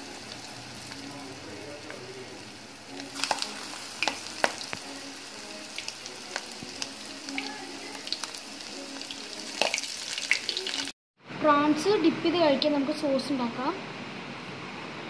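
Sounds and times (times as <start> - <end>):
prawns deep-frying in hot oil: 0.0 - 11.0
oil crackling and popping: 3.0 - 10.9.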